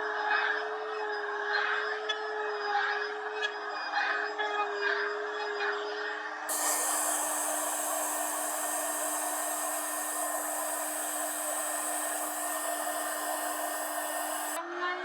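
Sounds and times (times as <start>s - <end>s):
router bit cutting wood: 6.5s - 14.6s
router motor whine: 6.5s - 14.6s.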